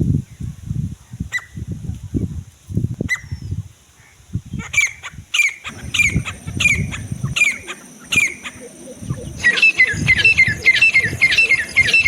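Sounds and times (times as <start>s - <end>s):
francolin calling: 4.6s - 12.0s
low rumbling noise: 5.7s - 12.0s.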